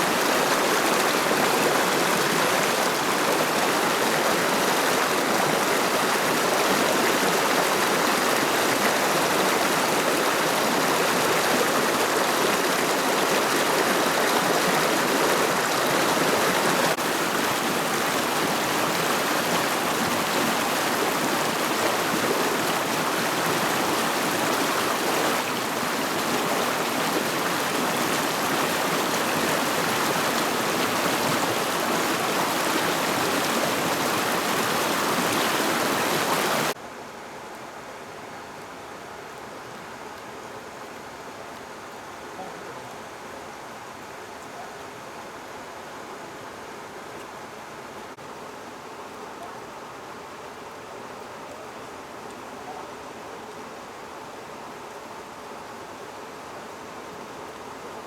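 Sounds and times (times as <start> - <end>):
rushing river water: 0.0 - 36.8.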